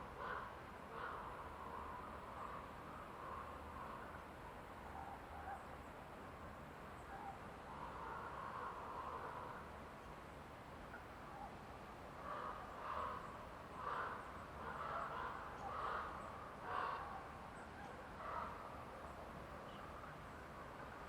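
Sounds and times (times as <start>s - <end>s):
faint forest ambience: 0.0s - 21.0s
crow cawing: 12.2s - 17.1s.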